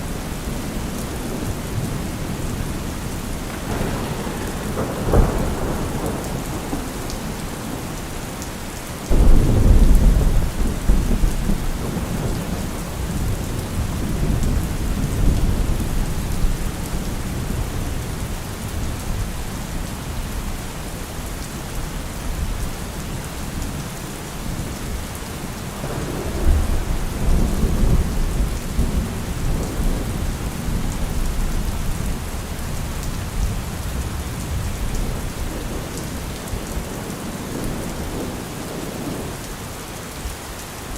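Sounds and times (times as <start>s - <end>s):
steady rain: 0.0s - 40.9s
thunder rolling: 0.8s - 8.1s, 9.1s - 18.0s, 25.8s - 39.3s.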